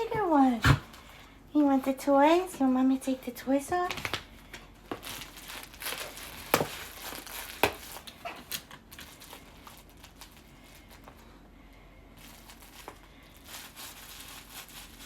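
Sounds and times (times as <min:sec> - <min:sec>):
packaging rustling and crinkling: 0:03.7 - 0:11.3, 0:12.2 - 0:15.0.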